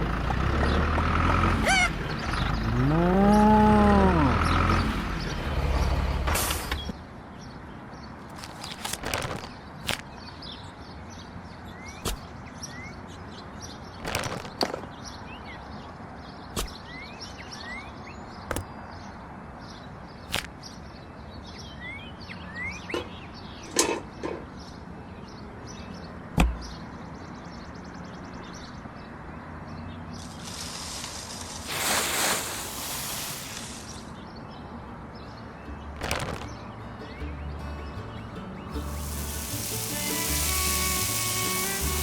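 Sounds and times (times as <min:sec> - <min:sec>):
steady hiss: 0:30.2 - 0:34.2, 0:38.8 - 0:42.0.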